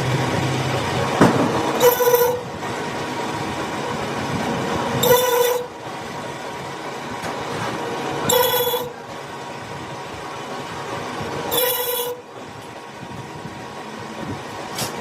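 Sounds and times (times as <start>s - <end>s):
machinery running: 0.0s - 15.0s
short high squeal: 1.8s - 2.5s, 5.0s - 5.7s, 8.2s - 9.0s, 11.5s - 12.3s.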